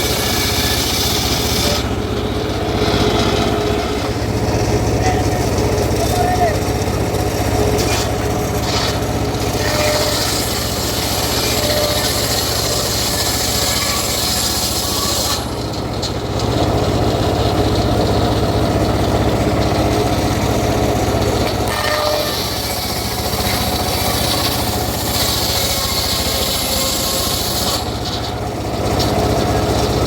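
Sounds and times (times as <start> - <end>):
engine hum: 0.0 - 30.0
saw blade hissing in wood: 7.8 - 15.5, 21.7 - 27.9.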